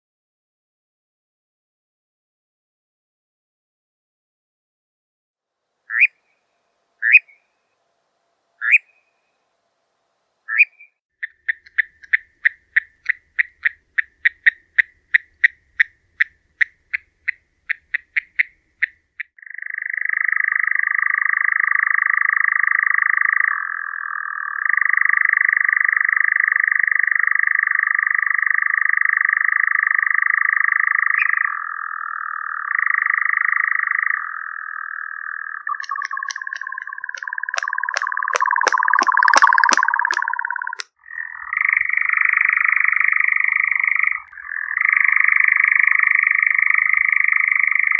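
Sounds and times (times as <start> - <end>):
bird churring trill: 10.5 - 20.2, 34.1 - 47.9.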